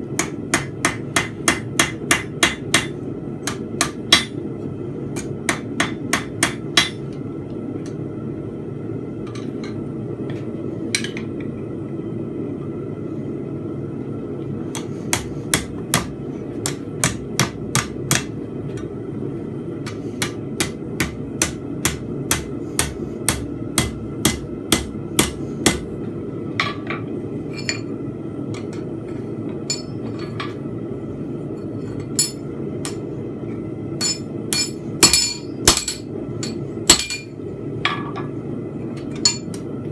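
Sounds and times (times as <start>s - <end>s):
hammer striking steel on anvil: 0.2s - 4.4s, 5.2s - 7.1s, 14.8s - 18.4s, 19.8s - 25.9s, 29.6s - 30.3s, 32.0s - 33.0s, 34.0s - 38.2s, 39.1s - 39.6s.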